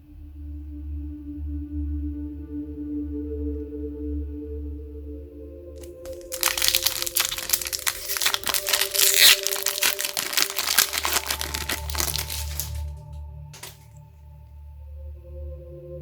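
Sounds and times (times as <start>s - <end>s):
plastic packaging crinkling: 5.8s - 12.9s, 13.6s - 13.8s.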